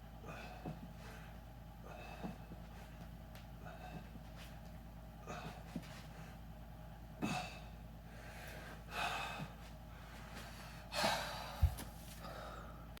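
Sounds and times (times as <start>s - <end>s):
person breathing hard: 7.2s - 13.0s.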